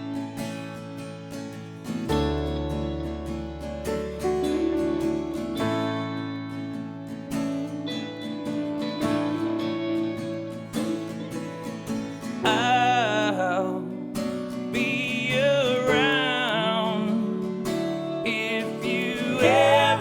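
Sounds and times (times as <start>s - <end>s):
strummed acoustic guitar: 0.0s - 20.0s
bass and held notes: 2.1s - 7.6s.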